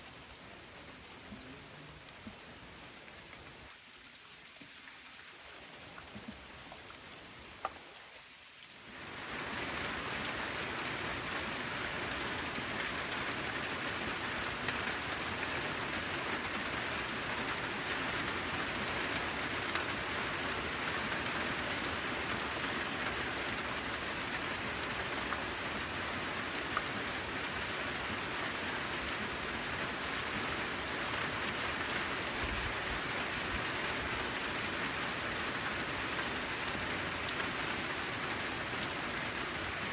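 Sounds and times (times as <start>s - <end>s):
dense rainfall: 0.0s - 39.9s
rain drop ticks: 6.0s - 7.9s, 38.8s - 39.1s.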